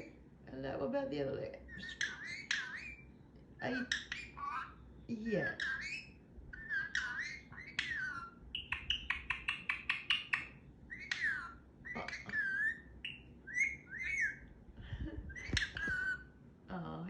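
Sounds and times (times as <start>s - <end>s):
parrot chattering and whistling: 1.6s - 14.5s, 15.2s - 16.4s
parrot clicky notes: 8.6s - 10.5s.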